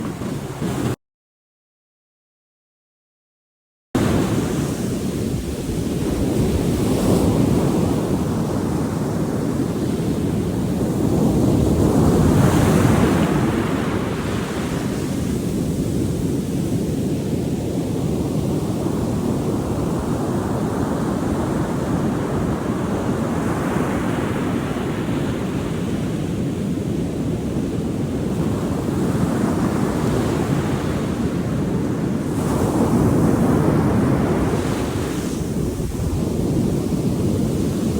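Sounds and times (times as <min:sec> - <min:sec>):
ocean waves breaking: 0:00.0 - 0:01.0, 0:04.0 - 0:16.3
wind buffeting microphone: 0:00.0 - 0:01.0, 0:04.0 - 0:37.9.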